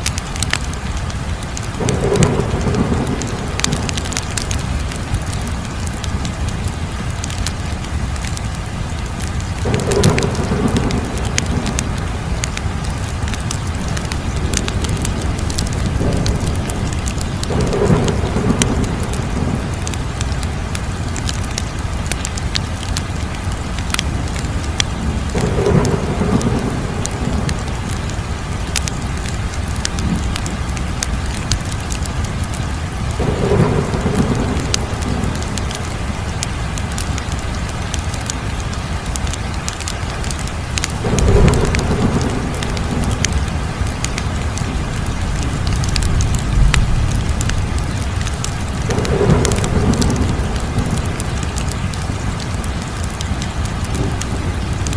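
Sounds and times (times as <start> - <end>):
wood fire crackling: 0.0 - 54.9
deep whooshing of fire: 0.3 - 38.3, 39.1 - 54.9
flames rushing: 9.5 - 21.4.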